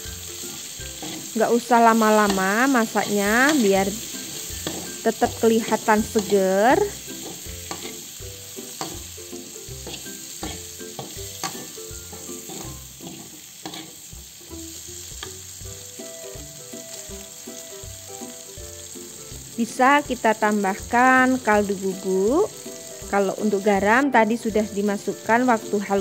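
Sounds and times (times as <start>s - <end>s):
vegetables sizzling in oil: 0.0s - 26.0s
metal spatula scraping a wok: 0.2s - 14.1s.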